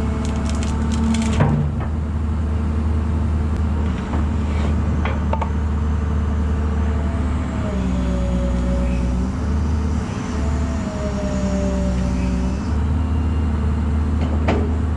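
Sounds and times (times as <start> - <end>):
engine running steadily: 0.0 - 14.9.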